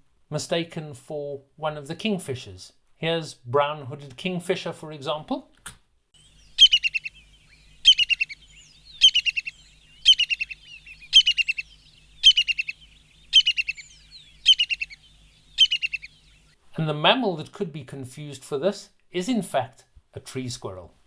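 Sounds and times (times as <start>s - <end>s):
kingfisher piping call: 6.2s - 16.6s.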